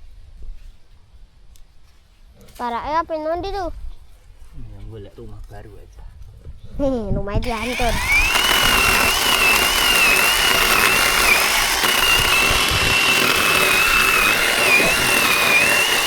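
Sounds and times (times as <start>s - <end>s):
electric chainsaw motor whine: 7.4s - 16.0s
chain rasping through wood: 7.5s - 16.0s.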